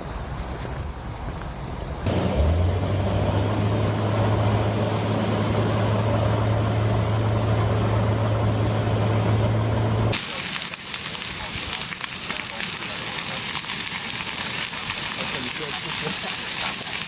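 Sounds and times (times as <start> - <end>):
engine humming: 2.0 - 10.2.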